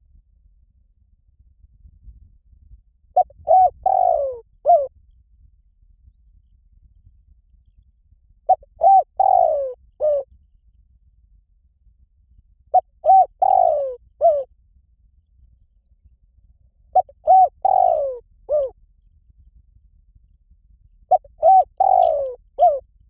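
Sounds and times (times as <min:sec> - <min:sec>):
dove cooing: 0:03.2 - 0:04.9, 0:08.5 - 0:10.2, 0:12.8 - 0:14.5, 0:17.0 - 0:18.7, 0:21.1 - 0:22.8.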